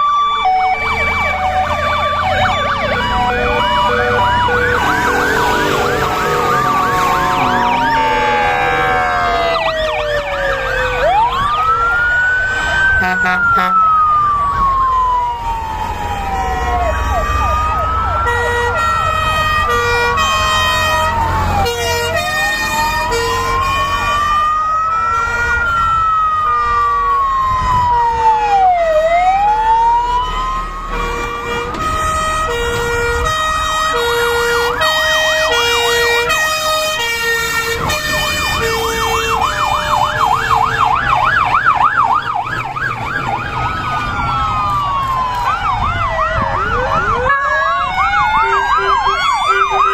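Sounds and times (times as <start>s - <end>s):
fast warbling siren yelp: 0.0s - 19.1s, 34.0s - 49.9s
two-tone hi-lo siren: 0.0s - 49.9s
wailing siren: 0.0s - 49.9s.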